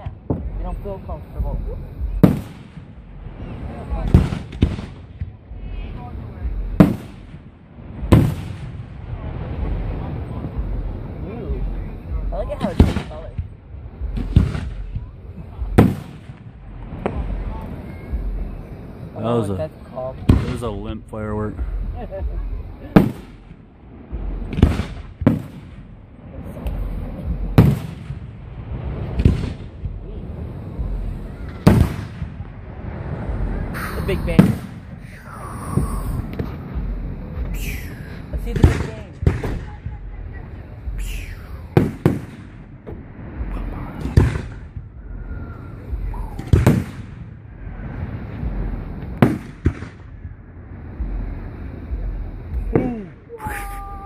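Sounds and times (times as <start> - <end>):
fireworks bursting overhead: 0.0 - 54.0
low rumble: 0.0 - 54.0
firework shells bursting: 2.0 - 3.0, 22.9 - 30.0, 30.7 - 32.9, 33.6 - 35.2, 40.9 - 43.0, 46.0 - 47.4, 49.0 - 50.5.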